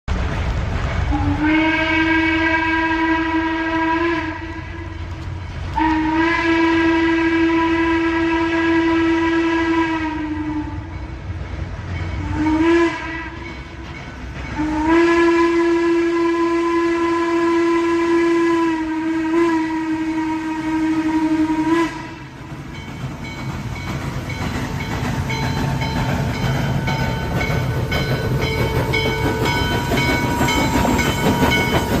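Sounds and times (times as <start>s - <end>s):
train rumbling and clattering by: 0.1s - 32.0s
train horn blasts: 1.1s - 11.1s, 12.2s - 13.5s, 14.5s - 22.4s.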